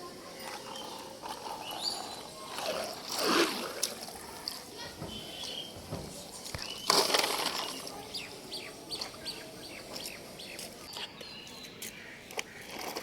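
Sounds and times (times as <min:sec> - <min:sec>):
small birds chirping: 0:00.7 - 0:02.5, 0:04.8 - 0:12.6.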